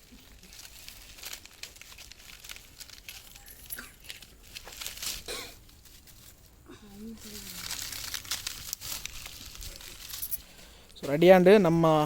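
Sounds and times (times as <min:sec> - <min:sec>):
crinkling and rustling: 0:00.0 - 0:11.4.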